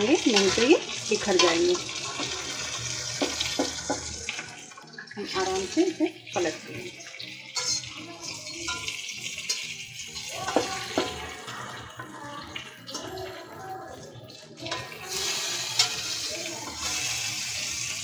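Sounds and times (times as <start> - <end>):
vegetables sizzling in oil: 0.0 - 18.0
metal spatula clicking on pan: 15.8 - 16.8.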